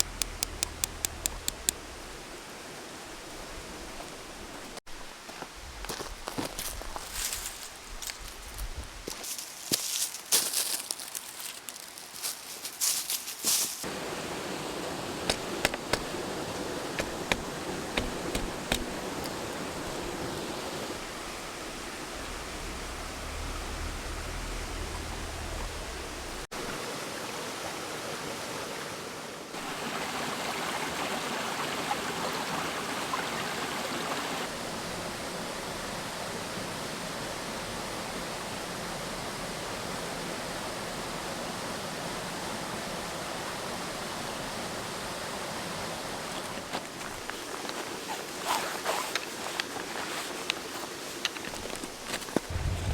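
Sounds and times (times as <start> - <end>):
sharp clicks: 0.0 - 2.0
stream rushing over rocks: 13.8 - 52.9.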